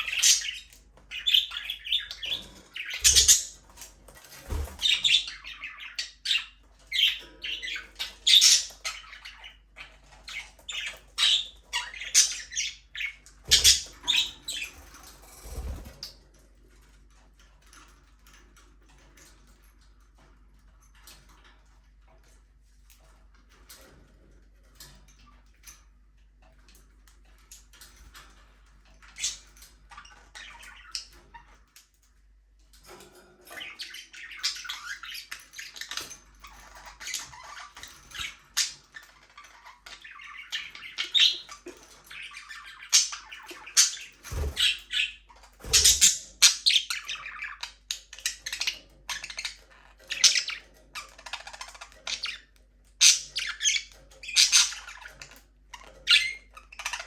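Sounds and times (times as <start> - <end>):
budgerigars chirping: 0.0 - 14.9, 33.5 - 57.0.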